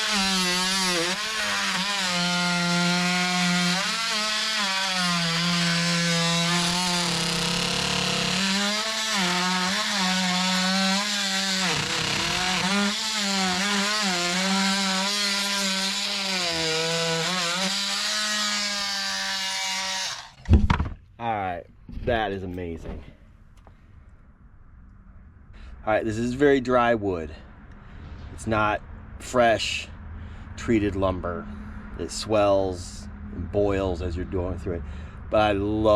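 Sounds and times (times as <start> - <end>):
multi-tool saw cutting wood: 0.0 - 20.5.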